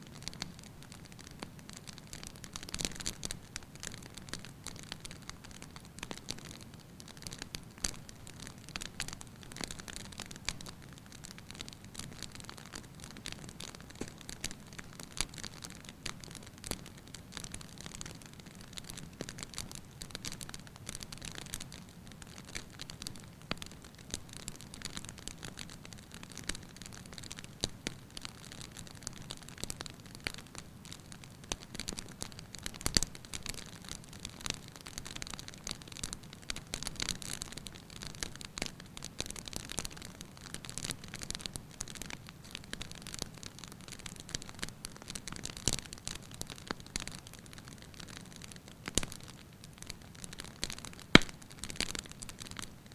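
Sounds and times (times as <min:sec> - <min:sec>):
wood fire crackling: 0:00.0 - 0:52.9.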